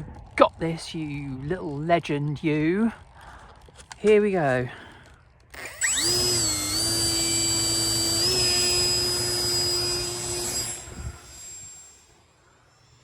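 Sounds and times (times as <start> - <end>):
electric motor and propeller whine: 5.5 - 13.0.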